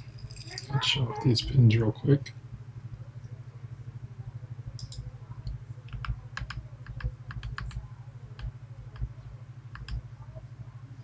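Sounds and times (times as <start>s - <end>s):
low electrical hum: 0.0s - 11.0s
metallic clicks of lock pins: 4.8s - 5.1s.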